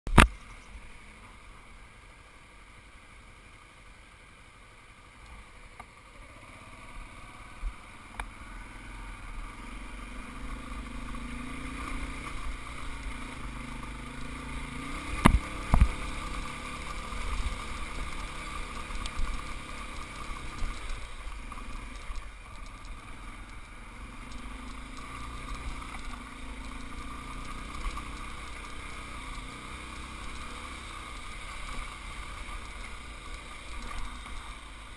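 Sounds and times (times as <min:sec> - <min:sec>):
sharp click: 0:00.1 - 0:00.5
motorcycle engine rumble: 0:00.1 - 0:34.9
road and wind noise: 0:00.1 - 0:34.9.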